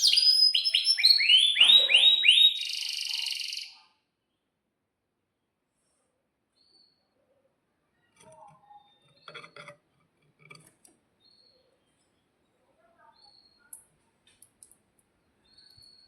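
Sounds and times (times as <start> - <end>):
canary chirps: 0.0 - 4.0, 11.2 - 14.0, 15.4 - 16.0.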